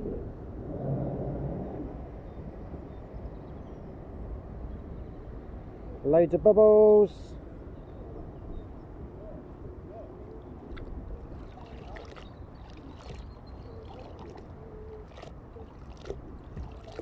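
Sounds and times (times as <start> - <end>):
wind rumble on microphone: 0.0 - 17.0
light water sounds: 8.5 - 17.0.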